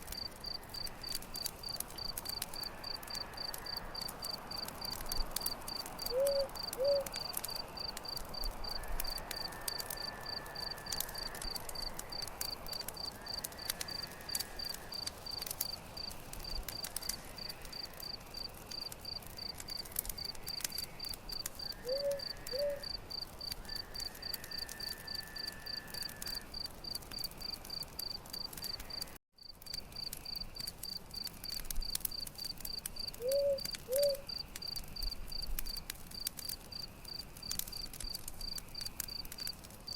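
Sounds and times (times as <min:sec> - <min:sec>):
campfire crackling: 0:00.0 - 0:39.9
cricket chirping: 0:00.1 - 0:39.6.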